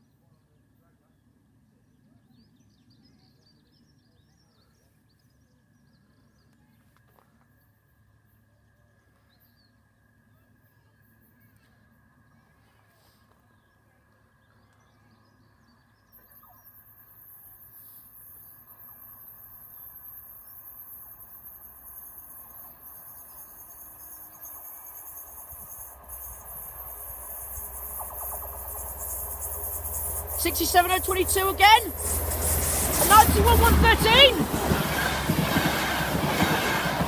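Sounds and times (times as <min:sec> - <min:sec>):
high hiss from rails: 0:17.6 - 0:37.0
train rumbling: 0:19.4 - 0:37.0.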